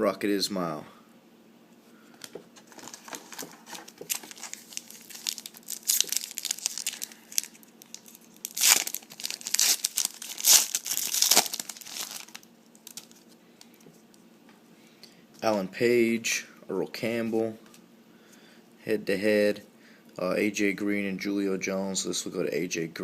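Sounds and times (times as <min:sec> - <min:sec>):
foil wrapper crinkling: 0:02.6 - 0:13.4
foil wrapper tearing: 0:02.7 - 0:13.2.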